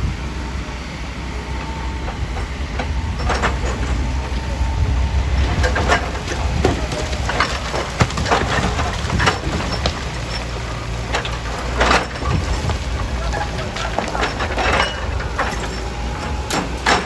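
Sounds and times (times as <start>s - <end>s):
diesel engine running: 0.0s - 17.0s
rock cracking and clattering: 5.6s - 17.0s.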